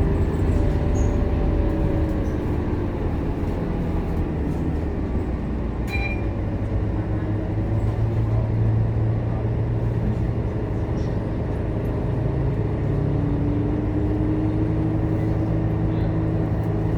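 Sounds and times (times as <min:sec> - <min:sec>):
bus diesel engine running: 0:00.0 - 0:16.9
short high beep: 0:05.9 - 0:06.3.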